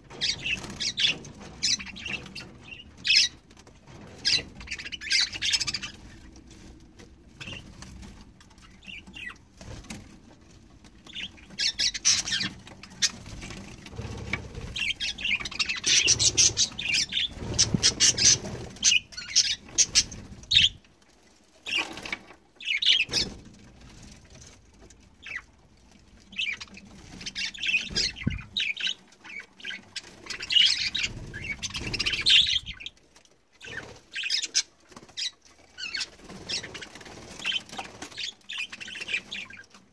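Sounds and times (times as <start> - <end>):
budgerigars chattering and squawking: 0.1 - 3.4, 4.2 - 6.3, 8.6 - 9.4, 11.1 - 13.3, 13.9 - 20.8, 26.3 - 33.0, 33.6 - 39.7
wing flutters: 11.2 - 20.7.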